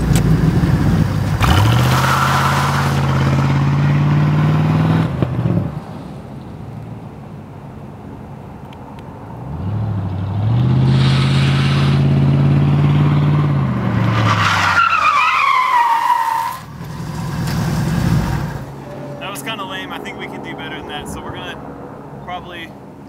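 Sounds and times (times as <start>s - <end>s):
car engine revving: 0.0s - 6.2s, 9.3s - 22.2s
tyres squealing: 14.1s - 17.4s, 18.4s - 20.2s.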